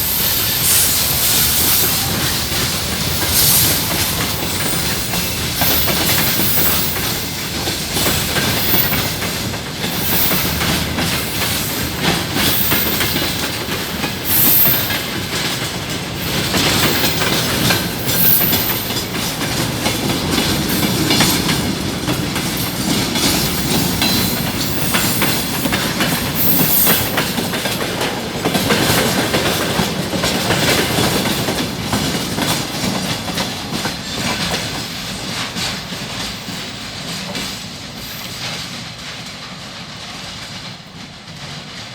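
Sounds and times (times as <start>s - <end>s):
high wheel squeals: 0.0s - 7.6s, 9.9s - 15.2s, 16.2s - 19.3s, 23.4s - 27.3s
train wheels clattering: 0.0s - 41.9s.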